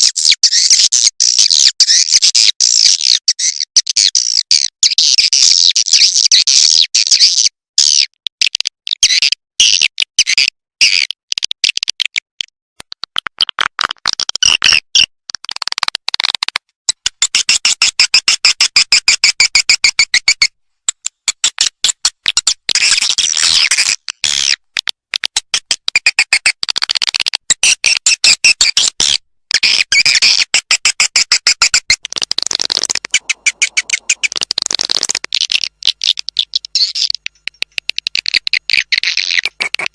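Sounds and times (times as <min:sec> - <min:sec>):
swiftlets twittering: 0:32.1 - 0:39.9.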